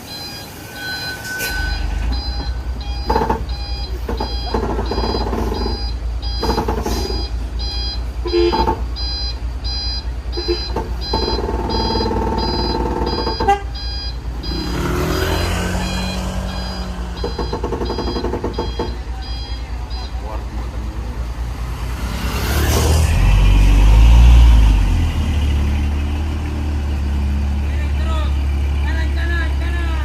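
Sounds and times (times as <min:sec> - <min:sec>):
reversing alarm beeping: 0:00.0 - 0:21.2
diesel engine running: 0:00.0 - 0:30.0.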